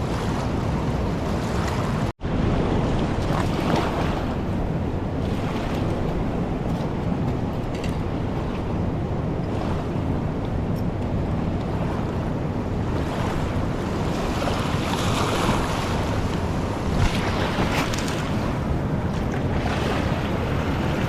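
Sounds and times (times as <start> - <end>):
wind on microphone: 0.0 - 21.0
river rushing: 11.3 - 21.0.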